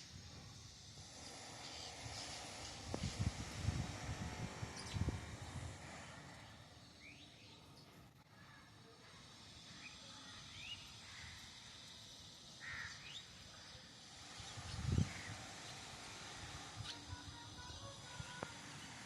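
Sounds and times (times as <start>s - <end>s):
harsh caw-like bird call: 11.0s - 11.8s, 12.5s - 13.8s, 15.0s - 15.8s.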